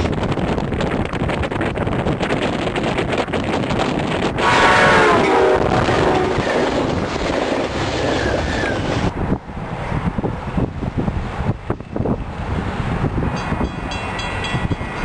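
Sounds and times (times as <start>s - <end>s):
train coaches rumbling past: 0.0s - 15.0s
train horn: 4.4s - 6.6s.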